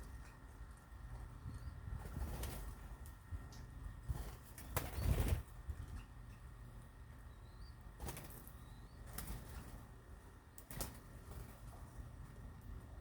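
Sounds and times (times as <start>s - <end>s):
birds flapping wings: 2.0s - 3.2s, 4.0s - 6.0s, 8.0s - 10.0s, 10.6s - 12.1s
faint bird chirps: 7.2s - 7.9s, 8.5s - 9.3s.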